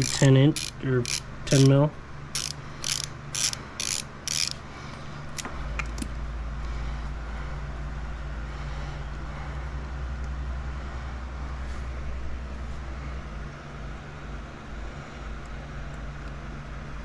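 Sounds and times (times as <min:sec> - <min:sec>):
socket ratchet clicking: 0:00.0 - 0:04.6
steady low rumble: 0:00.0 - 0:17.0.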